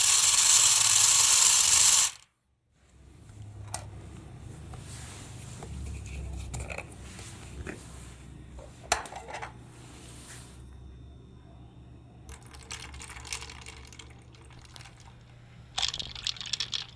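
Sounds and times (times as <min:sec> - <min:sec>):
toy electric motor humming: 0:00.0 - 0:02.3
plastic clattering: 0:12.3 - 0:16.9.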